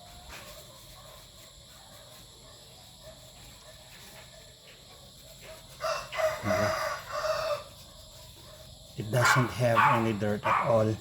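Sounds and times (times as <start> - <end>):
rooster crowing: 5.7 - 7.8.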